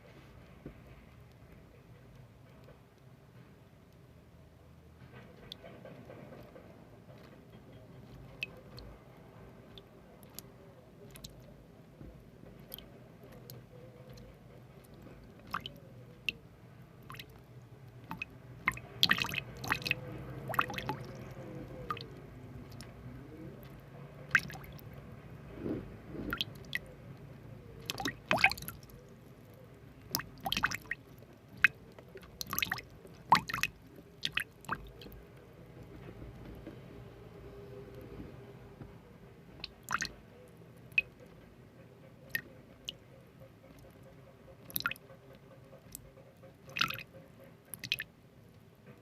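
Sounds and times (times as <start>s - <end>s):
wet squishing and clicking: 11.1s - 11.5s, 12.6s - 16.4s, 17.0s - 23.0s, 23.6s - 24.9s, 26.2s - 26.9s, 27.8s - 35.2s, 39.6s - 40.1s, 44.6s - 46.0s, 46.6s - 47.1s, 47.7s - 48.1s.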